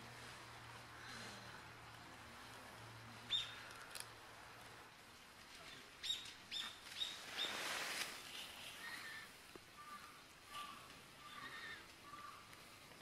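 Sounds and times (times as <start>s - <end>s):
small bird chirping: 3.3s - 3.7s.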